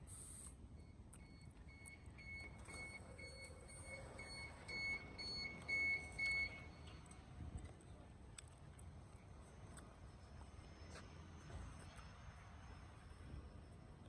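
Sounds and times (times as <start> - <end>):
train door warning beeps: 0.0 - 7.1.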